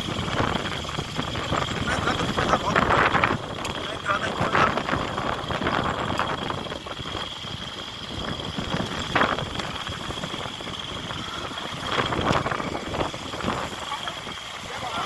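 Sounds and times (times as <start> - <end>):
vehicle running with high whine: 0.0 - 15.0
distant shouts: 10.7 - 15.0.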